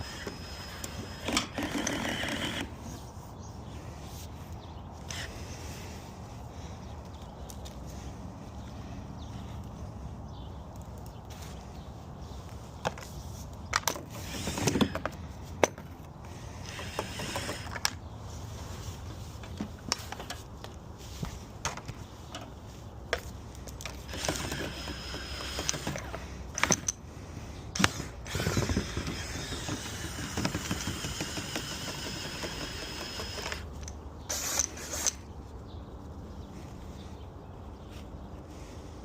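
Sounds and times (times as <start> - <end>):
tools clicking and scraping: 0.0 - 3.1, 19.0 - 20.8, 21.7 - 27.1, 27.7 - 35.4.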